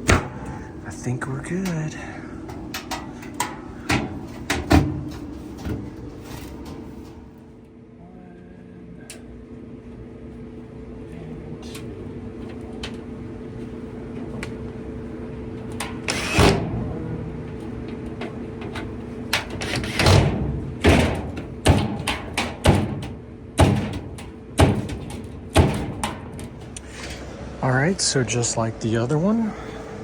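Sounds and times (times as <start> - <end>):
mechanical hum: 0.0 - 30.0
knocks and bangs on sheet metal: 2.7 - 5.9, 19.4 - 26.5.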